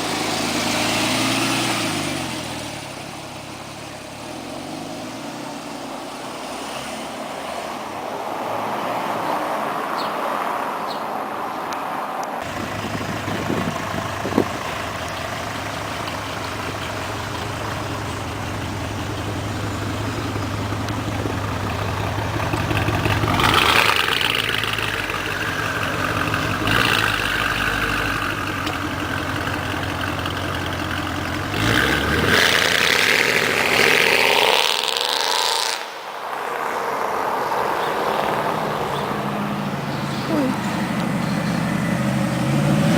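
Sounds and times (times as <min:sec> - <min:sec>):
engine revving: 0:00.0 - 0:08.0, 0:12.4 - 0:36.0, 0:37.6 - 0:42.9
sports car engine idling: 0:12.4 - 0:33.4, 0:38.3 - 0:42.7.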